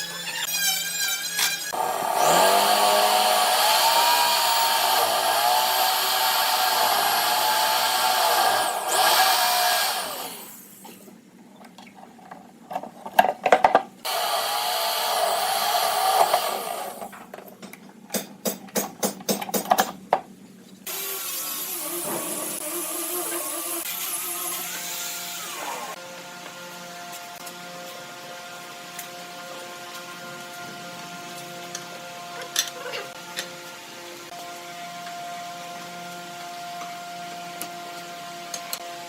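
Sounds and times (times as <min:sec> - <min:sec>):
power tool motor whine: 0:00.2 - 0:10.8, 0:14.1 - 0:17.1, 0:20.9 - 0:26.0.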